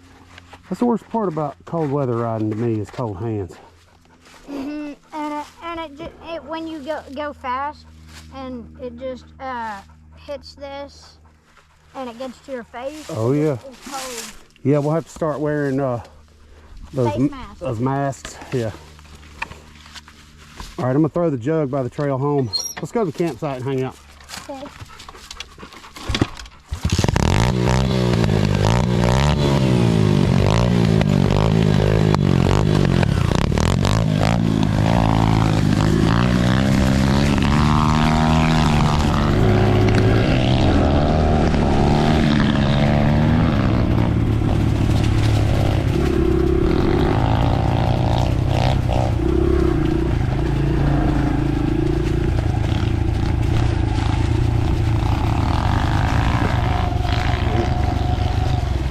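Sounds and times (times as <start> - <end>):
dirt bike engine: 0.0 - 58.9.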